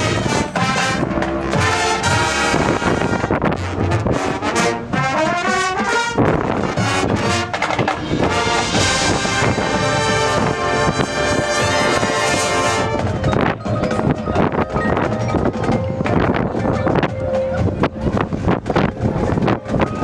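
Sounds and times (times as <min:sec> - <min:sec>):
marching band brass chords: 0:00.0 - 0:20.0
drum hits: 0:03.8 - 0:16.4.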